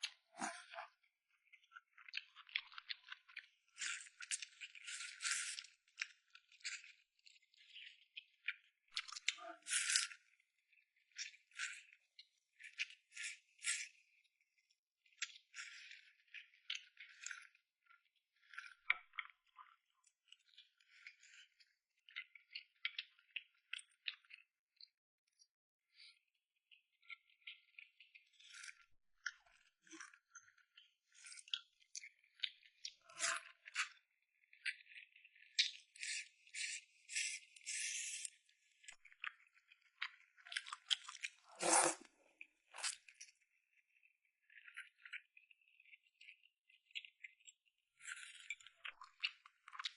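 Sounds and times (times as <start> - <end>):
chewing sounds: 1.9 - 14.2, 15.2 - 21.5, 34.6 - 49.9
wet chewing and biting: 40.4 - 42.1.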